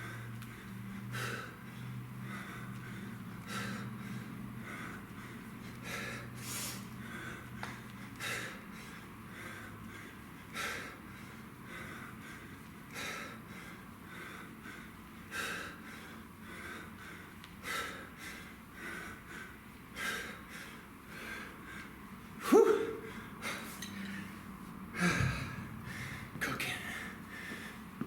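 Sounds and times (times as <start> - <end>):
man breathing heavily: 0.0 - 28.0
man grunting: 22.4 - 23.1.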